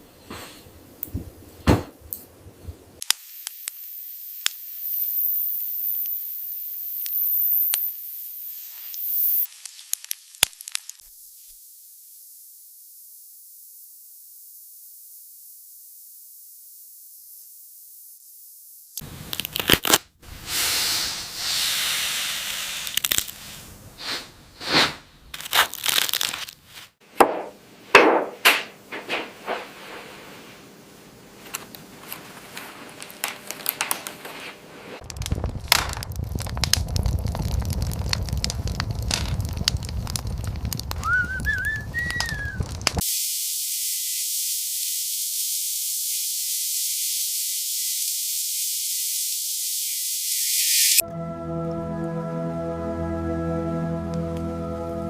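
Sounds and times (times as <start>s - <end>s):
campfire crackling and snapping: 3.0s - 11.2s, 19.0s - 20.4s, 22.4s - 23.9s, 25.3s - 26.7s, 31.4s - 43.0s
fire low rumble: 19.1s - 26.4s, 29.1s - 43.0s
wavering whistle: 41.0s - 42.7s.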